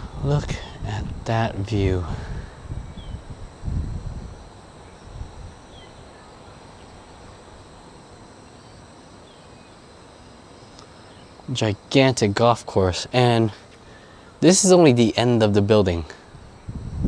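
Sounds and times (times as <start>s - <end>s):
faint bird chirps: 0.0s - 12.0s
insect chirring: 0.0s - 17.0s.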